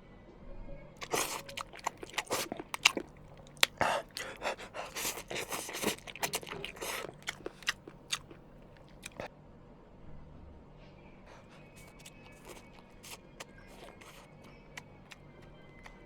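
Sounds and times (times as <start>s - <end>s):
dog chewing and crunching: 1.0s - 9.3s, 11.5s - 16.0s.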